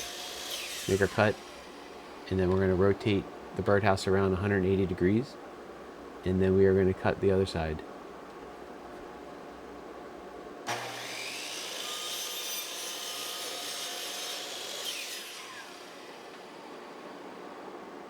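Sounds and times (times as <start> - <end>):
miter saw whining and cutting wood: 0.0 - 2.3, 10.7 - 17.4.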